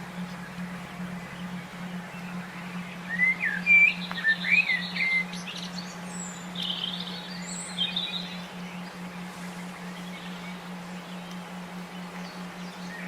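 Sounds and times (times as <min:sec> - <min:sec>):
steady low hum: 0:00.0 - 0:13.0
songbird whistling and trilling: 0:01.2 - 0:09.0.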